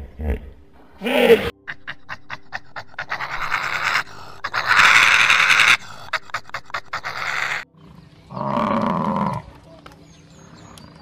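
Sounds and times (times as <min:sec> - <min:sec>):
breathy rush: 0:00.8 - 0:07.6
animal huffing breathily: 0:05.6 - 0:07.6.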